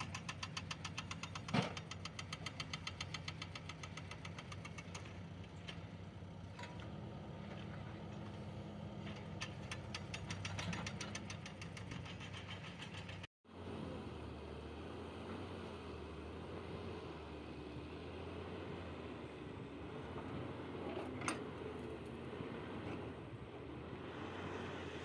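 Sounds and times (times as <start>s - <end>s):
rapid knocking ticks: 0.0s - 5.2s, 9.4s - 13.3s.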